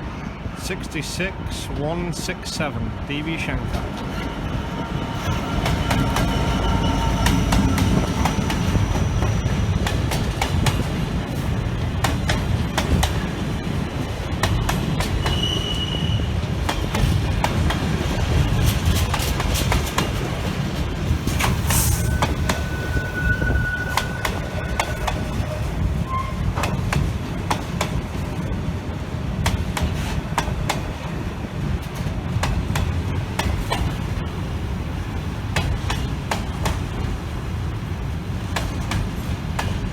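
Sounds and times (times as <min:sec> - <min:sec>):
diesel locomotive rumble: 0:00.0 - 0:39.9
wheel squeals: 0:15.2 - 0:16.3, 0:21.6 - 0:26.7
wagon wheels clickety-clack: 0:18.5 - 0:20.4.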